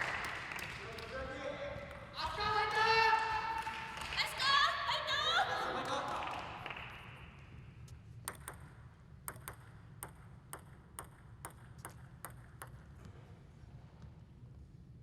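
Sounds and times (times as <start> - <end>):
low hall hum: 0.0 - 15.0
table tennis ball clicking: 8.2 - 13.0.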